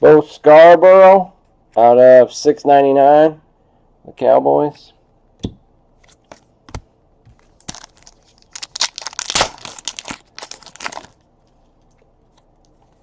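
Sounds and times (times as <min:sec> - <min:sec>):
packaging crinkling and rustling: 0:07.3 - 0:13.0.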